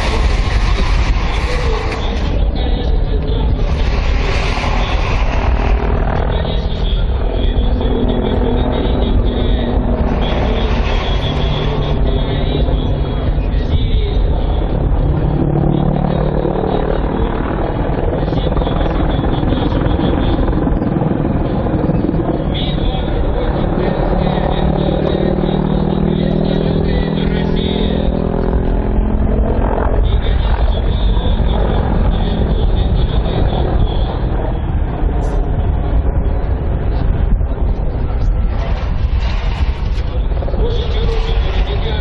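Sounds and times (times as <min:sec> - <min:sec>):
thin high whine: 0:00.0 - 0:14.8, 0:37.8 - 0:42.0
helicopter rotor and engine: 0:00.0 - 0:42.0
low hum: 0:00.0 - 0:42.0.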